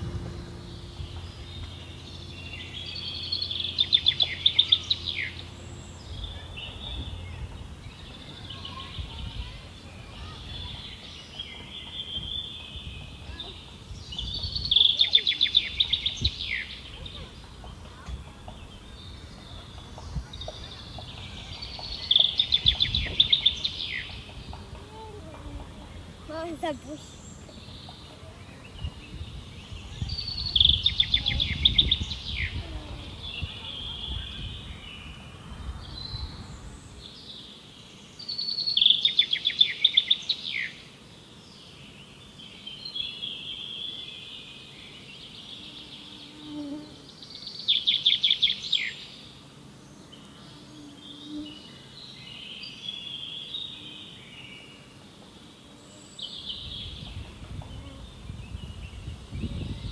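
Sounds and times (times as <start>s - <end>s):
birds twittering: 0.0s - 59.9s
songbird trilling phrase: 0.7s - 35.2s.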